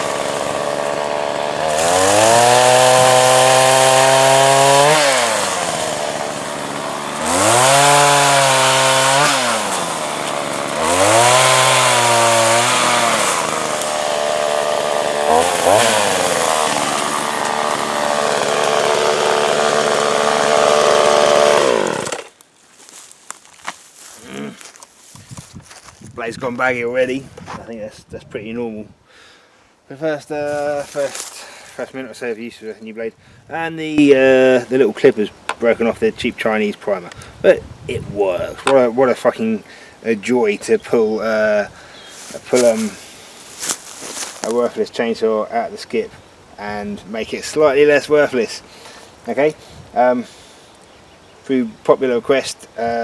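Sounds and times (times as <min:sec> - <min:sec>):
chainsaw revving and cutting wood: 0:00.0 - 0:25.9, 0:30.5 - 0:32.4, 0:42.1 - 0:44.8.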